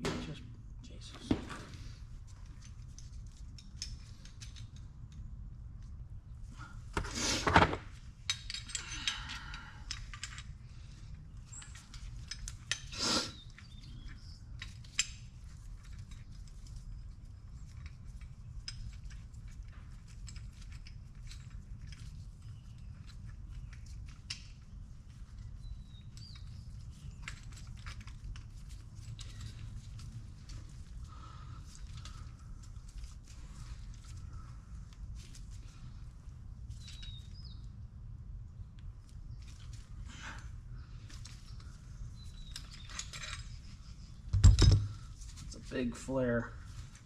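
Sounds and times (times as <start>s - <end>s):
steady low hum: 0.0s - 47.0s
metal tools clinking and scraping: 8.2s - 31.0s, 41.0s - 47.0s.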